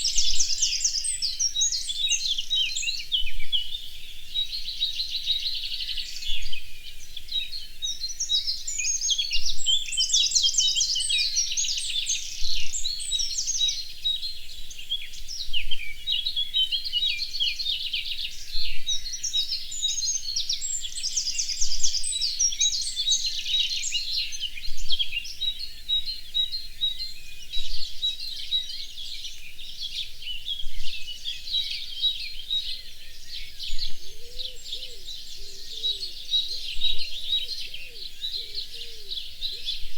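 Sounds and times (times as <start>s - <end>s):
songbirds singing: 0.0s - 39.9s
faint low bird call: 30.3s - 39.9s.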